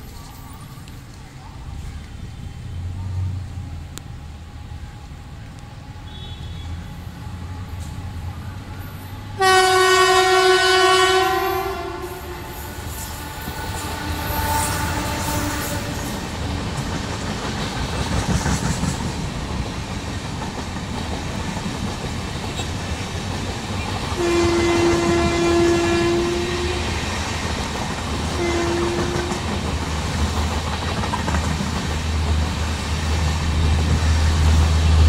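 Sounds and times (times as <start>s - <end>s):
train horn blast: 6.0s - 7.1s, 9.4s - 16.3s, 24.2s - 27.1s, 28.3s - 29.5s
train wheels rumbling and clattering: 9.2s - 35.0s.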